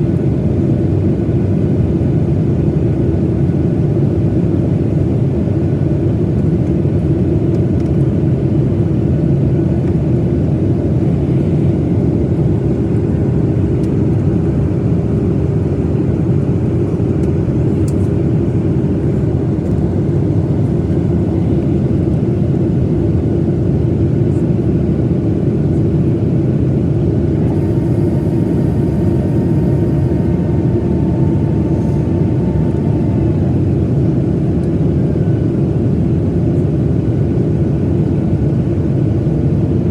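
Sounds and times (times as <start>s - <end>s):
aircraft cabin engine rumble: 0.0s - 39.9s
faint high whine: 27.3s - 35.6s.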